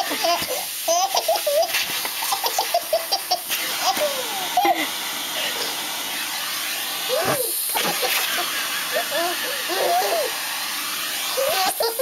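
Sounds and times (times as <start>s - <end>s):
baby laughing: 0.0s - 4.9s, 7.2s - 10.4s, 11.4s - 12.0s
vacuum cleaner running: 0.0s - 12.0s.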